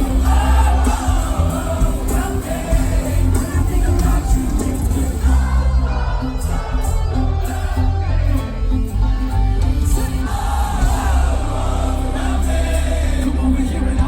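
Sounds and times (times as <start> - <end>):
person singing: 0.0 - 6.8
live band with heavy bass: 0.0 - 14.0.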